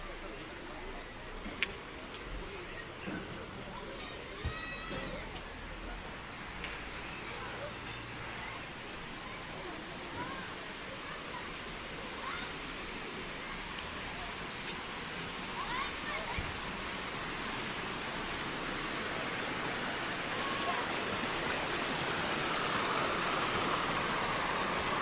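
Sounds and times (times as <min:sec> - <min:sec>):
mountain river rushing water: 0:05.3 - 0:25.0.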